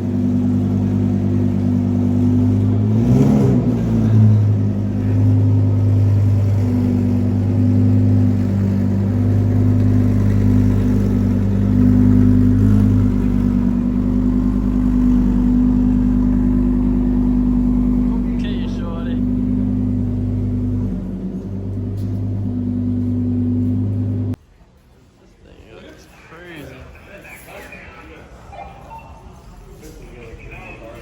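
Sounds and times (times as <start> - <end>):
car engine idling: 0.0 - 24.4
car engine revving: 0.0 - 24.4.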